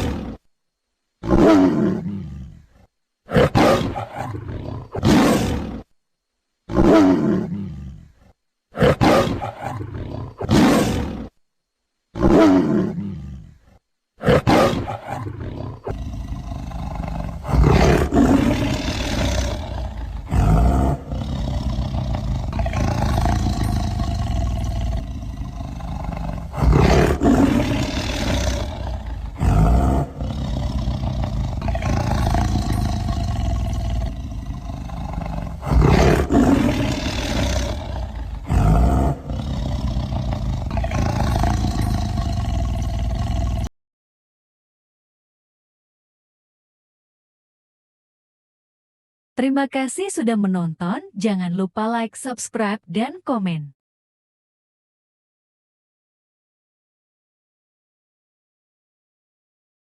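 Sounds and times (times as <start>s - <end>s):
tiger roaring: 0.0s - 0.5s, 1.2s - 5.9s, 6.7s - 11.4s, 12.1s - 43.7s.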